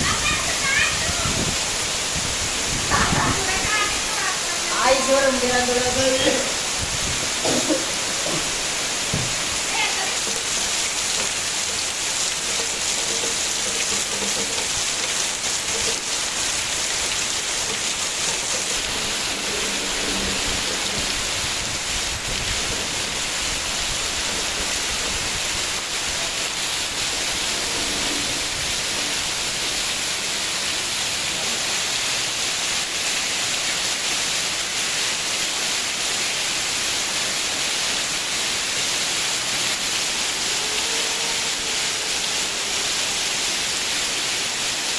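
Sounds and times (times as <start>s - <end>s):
heavy rain pouring: 0.0s - 44.9s.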